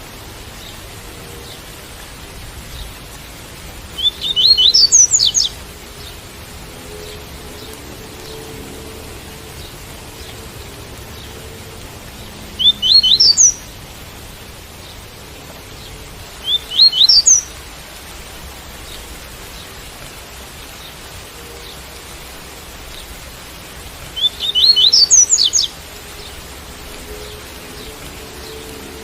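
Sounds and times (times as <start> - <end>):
rain hiss: 0.0 - 29.0
bird singing upslurred notes: 4.0 - 5.5, 12.6 - 13.7, 16.4 - 17.5, 24.2 - 26.4.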